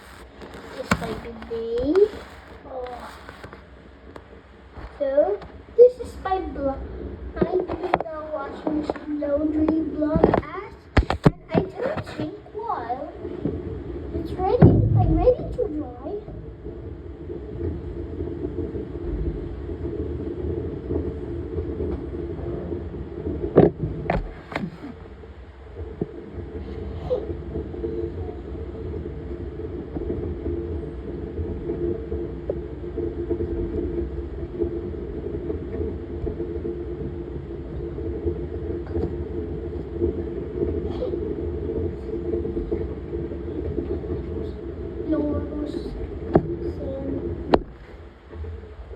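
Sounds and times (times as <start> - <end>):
laundry machine rumbling: 0.0 - 48.9.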